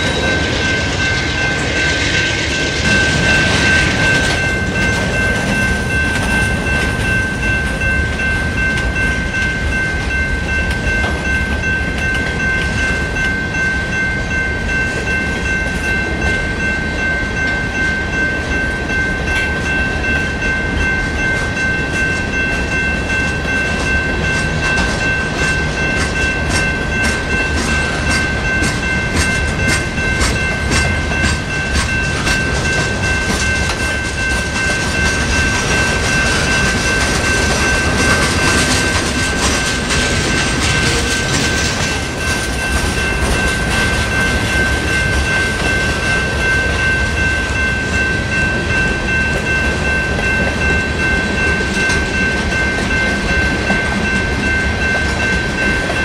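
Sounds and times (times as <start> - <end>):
steady high-pitched tone: 0.0 - 56.0
train rolling past: 0.0 - 56.0
wheels clicking over rail joints: 21.9 - 46.8.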